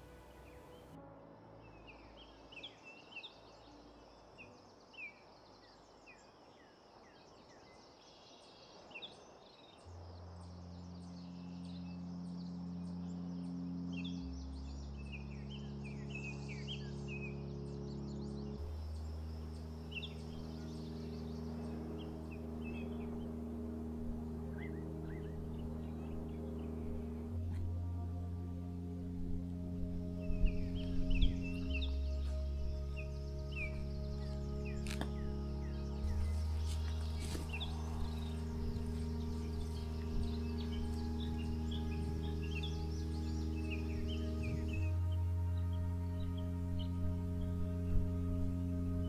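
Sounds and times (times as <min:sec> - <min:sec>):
ambient music drone: 0:00.0 - 0:08.5, 0:09.2 - 0:49.0
birds chirping: 0:01.6 - 0:49.0
high insect hum: 0:02.6 - 0:49.0.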